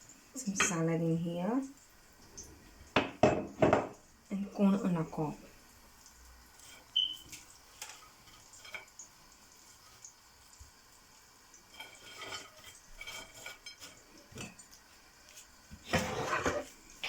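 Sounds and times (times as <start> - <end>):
clattering dishes: 2.9 - 4.0, 11.7 - 14.6, 15.7 - 17.0
utensils clinking on plates: 11.7 - 14.6, 15.8 - 16.7.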